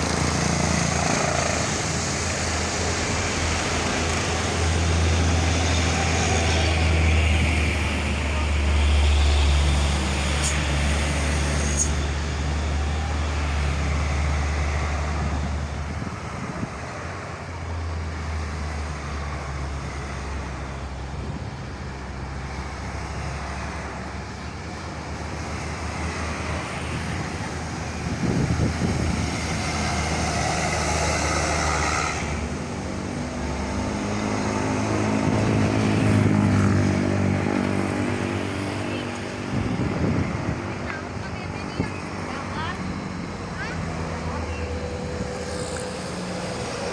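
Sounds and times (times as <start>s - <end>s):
pitched engine drone: 0.0s - 17.4s, 22.3s - 46.9s
tyre and road noise: 0.0s - 46.9s
vehicle engines running: 0.0s - 46.9s.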